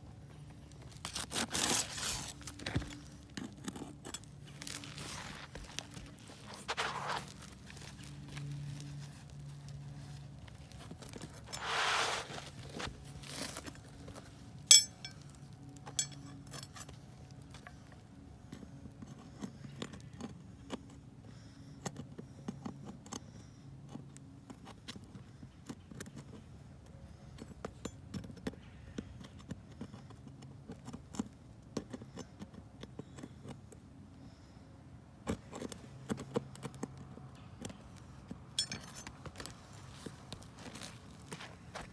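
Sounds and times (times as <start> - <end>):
light clicks taps and scrapes: 27.3 - 33.8.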